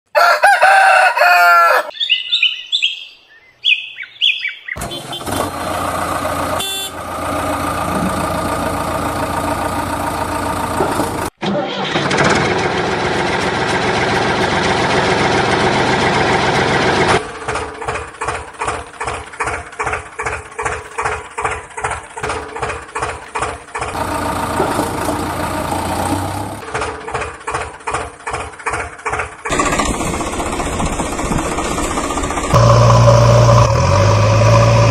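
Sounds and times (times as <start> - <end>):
rooster crowing: 0.1 - 2.1
diesel engines running: 4.8 - 34.9.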